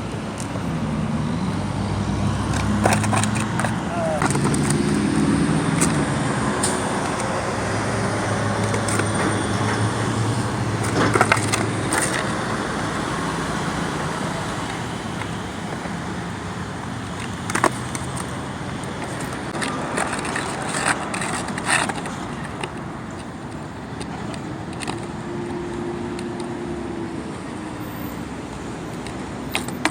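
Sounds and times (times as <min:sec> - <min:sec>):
skateboard wheels rumbling: 0:00.0 - 0:29.9
skateboard clacking on ground: 0:02.4 - 0:29.9.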